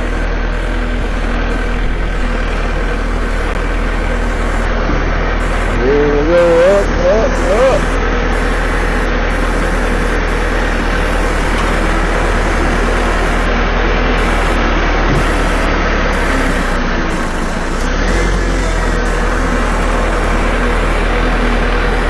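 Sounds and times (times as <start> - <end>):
tractor engine running under load: 0.0 - 22.0.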